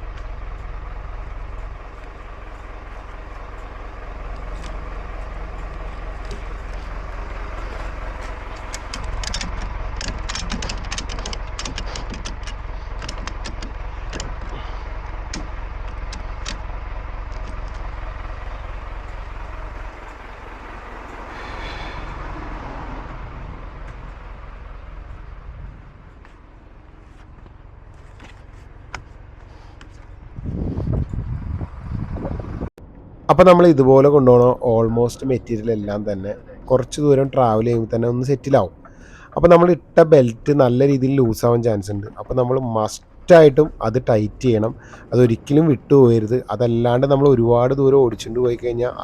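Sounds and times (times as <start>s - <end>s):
sharp clicks and rattles: 0.0s - 22.4s
lorry engine running: 0.0s - 49.0s.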